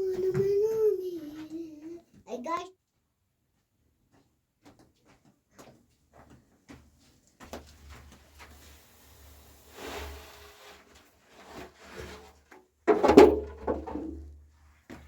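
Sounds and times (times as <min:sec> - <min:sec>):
soft rustle: 0:07.0 - 0:12.5
scraping and knocking: 0:09.3 - 0:14.4.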